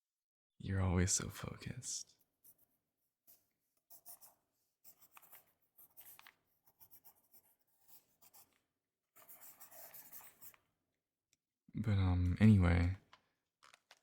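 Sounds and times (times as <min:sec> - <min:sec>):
pencil scratching on paper: 0:02.2 - 0:10.7.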